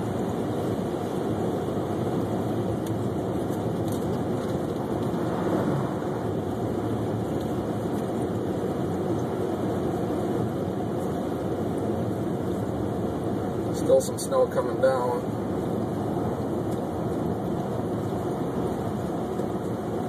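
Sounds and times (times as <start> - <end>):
car tyre and engine rumble: 0.0 - 20.0.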